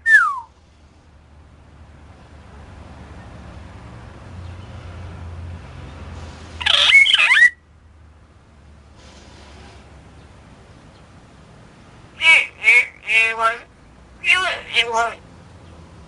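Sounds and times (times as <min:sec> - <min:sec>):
talking bird squawking whistle: 0:00.0 - 0:00.5, 0:06.6 - 0:07.6.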